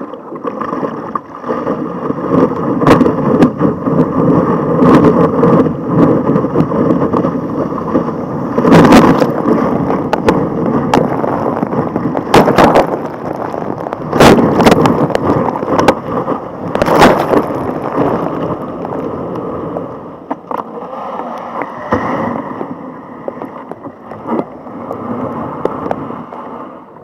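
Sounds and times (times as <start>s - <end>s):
water rushing around kayak: 0.0s - 27.0s.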